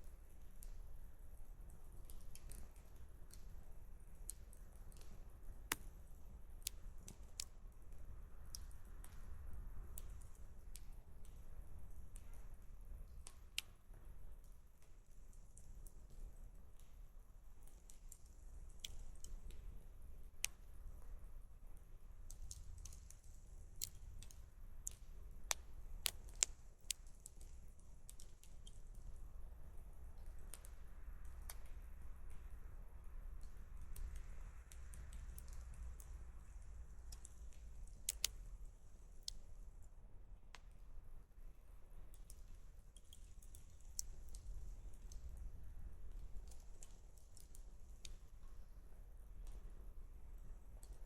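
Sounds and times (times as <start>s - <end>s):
faint low rumble: 0.0s - 51.0s
campfire crackling: 1.8s - 11.4s, 22.2s - 29.2s, 33.5s - 40.8s, 42.1s - 49.7s.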